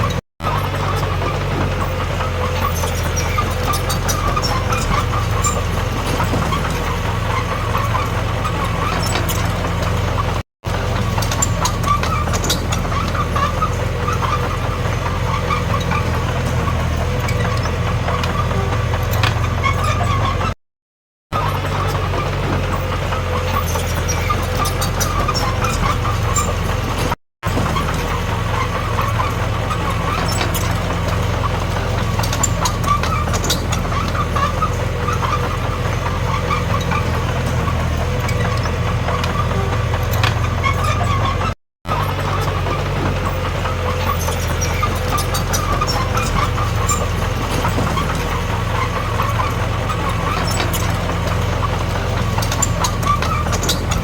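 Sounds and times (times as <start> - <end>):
bulldozer diesel engine running: 0.0 - 20.6, 21.3 - 54.0
metallic clanks: 23.6 - 54.0.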